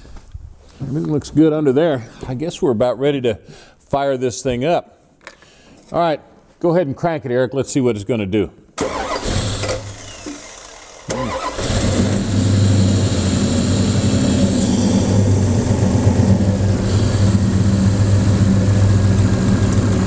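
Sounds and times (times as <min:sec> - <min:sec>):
car engine starting and idling: 0:08.8 - 0:20.0.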